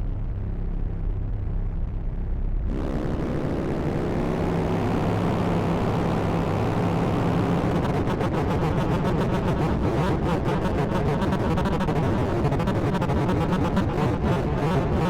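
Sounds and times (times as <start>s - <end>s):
noisy synthesizer drone: 0.0s - 15.0s
fast stuttering pulse: 7.6s - 15.0s.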